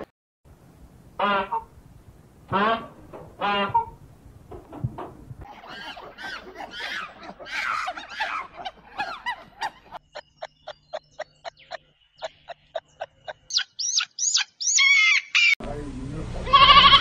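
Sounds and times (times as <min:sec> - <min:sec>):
birds chirping and calling: 0:02.5 - 0:15.6.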